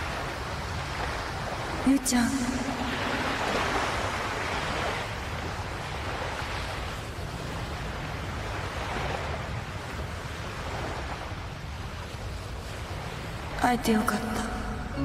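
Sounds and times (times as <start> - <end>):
sea waves washing onto beach: 0.0 - 15.0.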